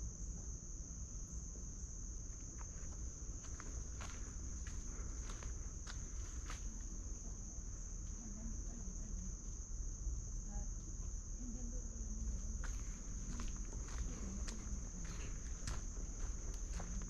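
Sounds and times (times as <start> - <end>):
insect chorus trilling: 0.0 - 17.0
footsteps on trail: 2.3 - 6.8, 12.5 - 17.0.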